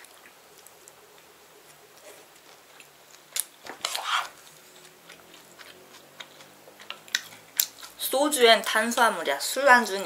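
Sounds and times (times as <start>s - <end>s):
quiet chewing: 0.0s - 8.0s.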